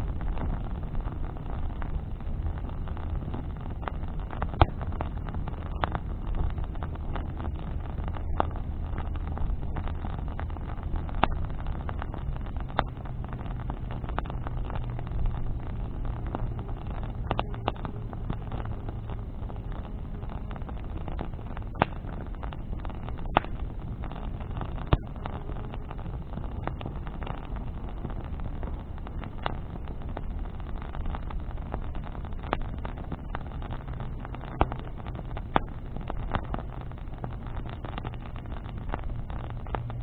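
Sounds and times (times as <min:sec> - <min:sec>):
bonfire crackling: 0:00.0 - 0:40.0
steady low rumble: 0:00.0 - 0:40.0
sharp loud pops: 0:21.7 - 0:22.2.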